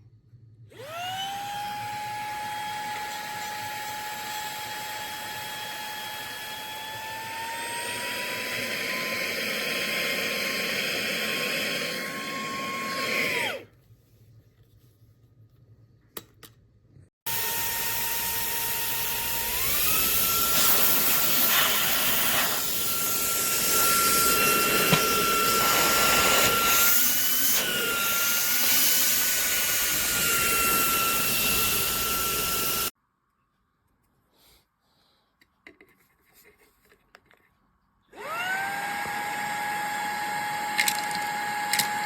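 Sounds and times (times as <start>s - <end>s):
handheld vacuum motor whining: 0.7s - 13.7s, 17.3s - 33.0s, 38.1s - 42.0s.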